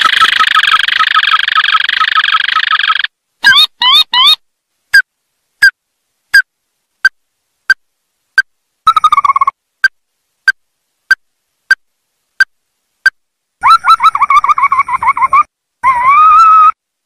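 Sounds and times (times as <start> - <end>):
bird trill: 0.0 - 4.4, 8.9 - 9.6.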